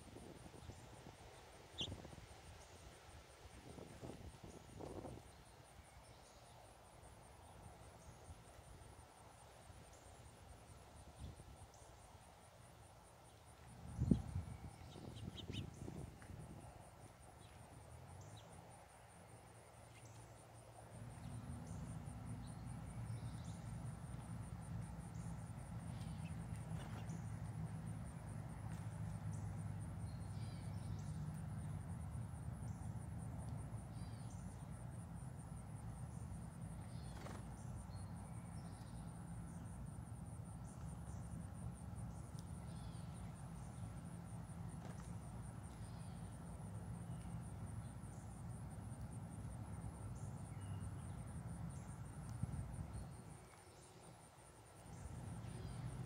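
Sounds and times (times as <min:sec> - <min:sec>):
bird chirps: 0:01.8 - 0:02.0, 0:14.0 - 0:16.0
high-pitched insect trill: 0:33.7 - 0:54.3.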